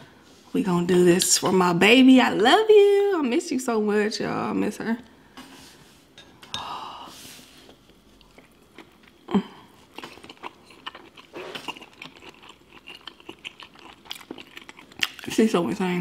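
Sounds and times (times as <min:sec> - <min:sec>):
wet chewing: 0:07.9 - 0:15.4.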